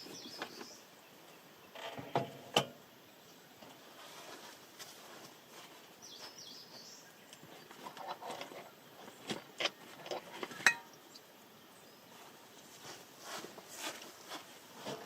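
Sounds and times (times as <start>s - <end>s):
small bird chirping: 0.0s - 1.8s.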